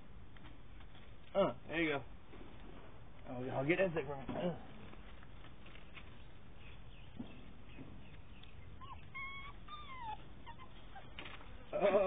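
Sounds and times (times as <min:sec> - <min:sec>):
puppy whimpering: 0:08.6 - 0:12.0.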